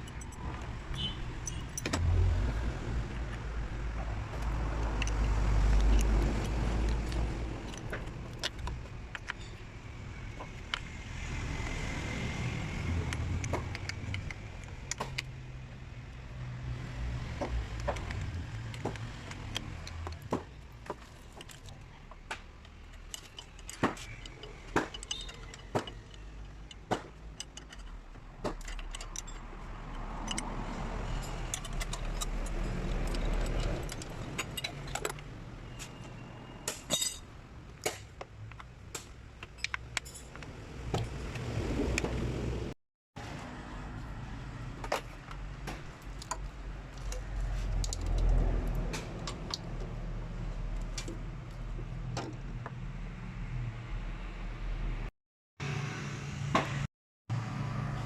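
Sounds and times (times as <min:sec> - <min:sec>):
metallic clinks of hand tools: 0:22.9 - 0:27.9.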